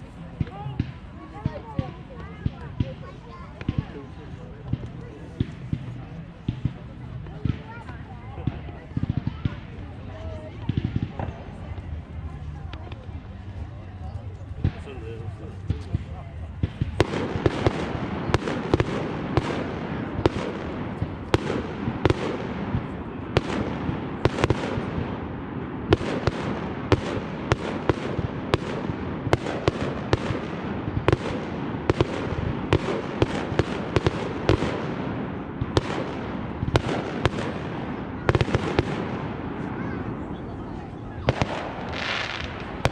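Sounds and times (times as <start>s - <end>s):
fireworks crackling: 14.5s - 42.9s.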